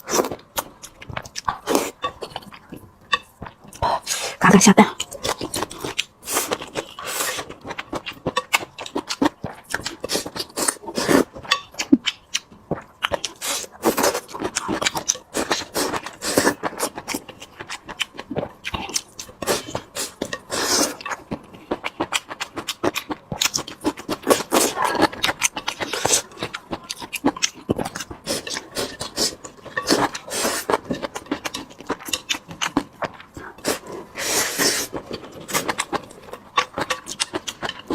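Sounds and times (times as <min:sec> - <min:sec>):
person chewing food: 0:00.0 - 0:37.9.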